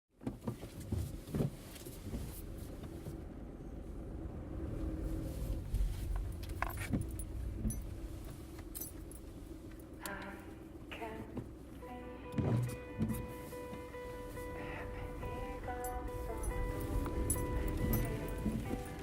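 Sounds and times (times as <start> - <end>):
car engine running: 0.8 - 19.0
car keys jangling: 5.7 - 10.1, 15.2 - 19.0.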